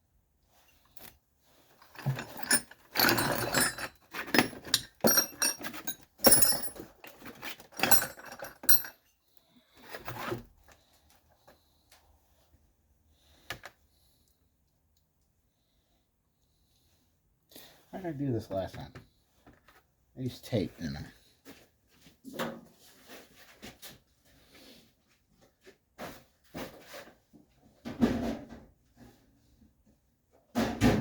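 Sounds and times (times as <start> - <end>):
metal hardware clinking: 1.8 - 9.0.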